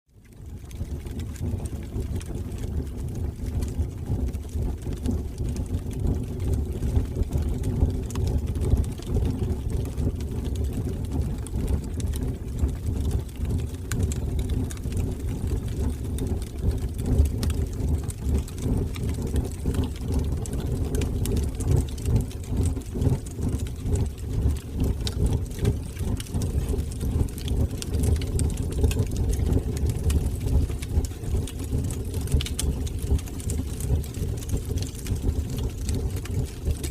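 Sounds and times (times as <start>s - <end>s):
wood fire crackling in fireplace: 0.2s - 36.9s.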